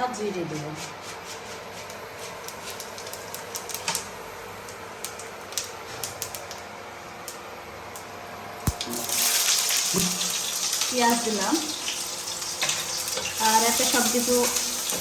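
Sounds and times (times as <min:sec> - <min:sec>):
seeds crackling in hot oil: 0:01.9 - 0:15.0
onion sizzling in oil: 0:08.6 - 0:15.0.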